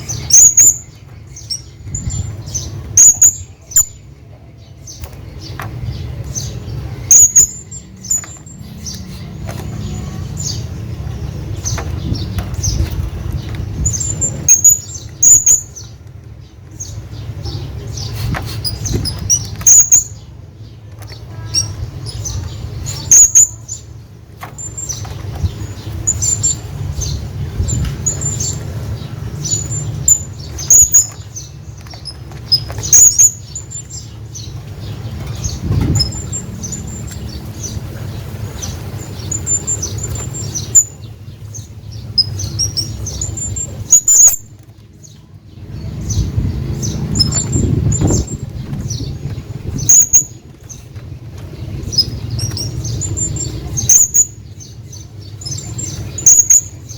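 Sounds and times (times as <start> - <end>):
parrot squeaking: 49.8 - 50.4, 52.0 - 54.4.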